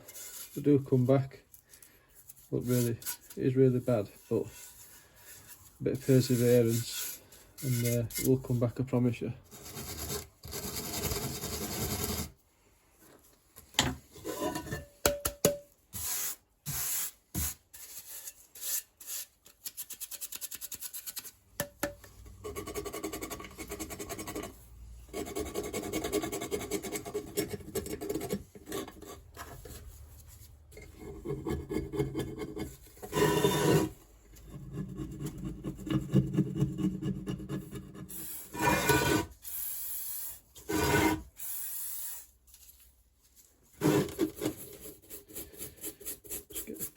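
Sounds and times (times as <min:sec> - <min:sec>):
brush scrubbing metal: 0:02.2 - 0:08.6, 0:43.7 - 0:46.9.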